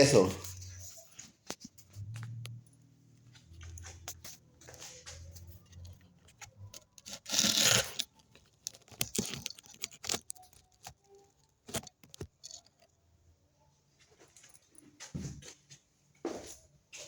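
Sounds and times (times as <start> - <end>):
wrapping crinkling: 4.9 - 12.9
package wrapping ripping: 6.8 - 12.6.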